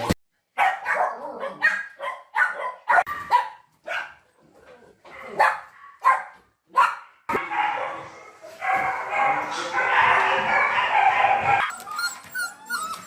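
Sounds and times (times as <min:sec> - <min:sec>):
dog barking: 0:00.6 - 0:04.2, 0:05.2 - 0:11.7.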